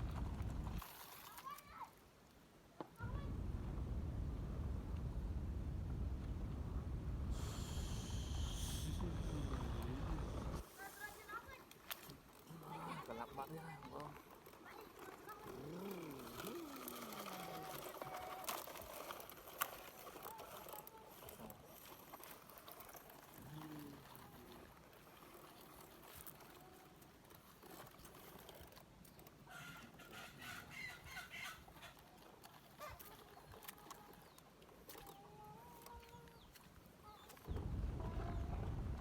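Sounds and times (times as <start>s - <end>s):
chickens clucking: 29.5s - 32.0s.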